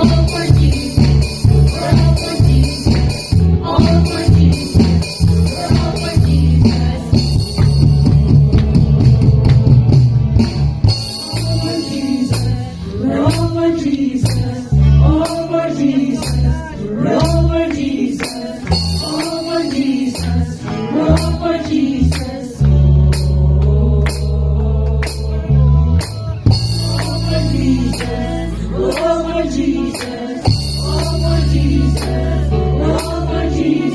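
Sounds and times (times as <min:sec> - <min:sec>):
person singing: 0:00.0 - 0:03.0
heavy bass: 0:00.0 - 0:17.8, 0:18.6 - 0:33.9
steady percussion beat: 0:00.0 - 0:33.9.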